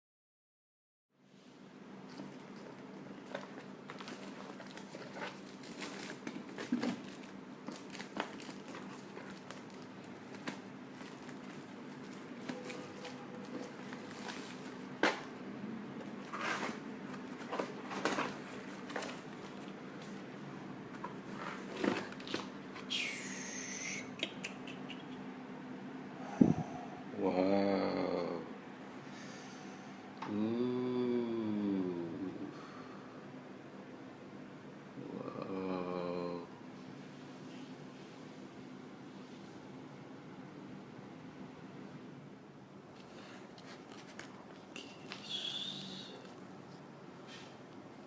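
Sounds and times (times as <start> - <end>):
low steady hum: 1.2 - 48.0
packaging crinkling and rustling: 2.1 - 15.3, 16.0 - 20.2, 21.0 - 22.6.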